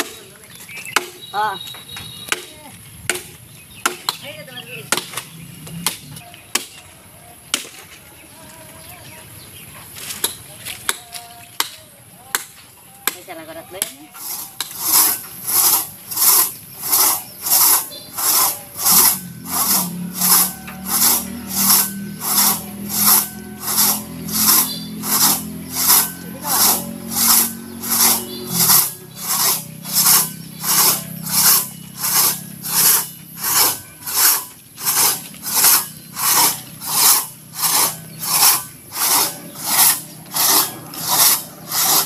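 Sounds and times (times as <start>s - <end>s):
hand saw rasping through wood: 13.8s - 42.0s.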